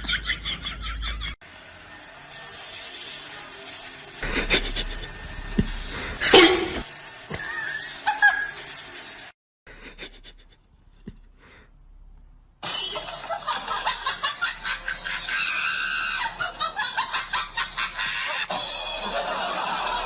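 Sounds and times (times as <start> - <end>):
person laughing hard: 4.2 - 6.8, 9.7 - 10.6.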